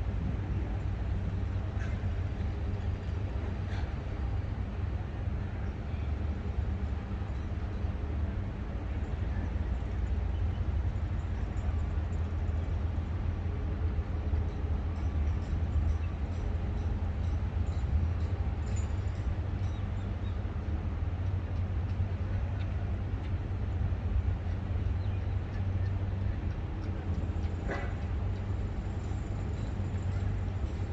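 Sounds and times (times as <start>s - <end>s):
distant traffic rumble: 0.0s - 30.9s
distant construction: 12.3s - 30.9s.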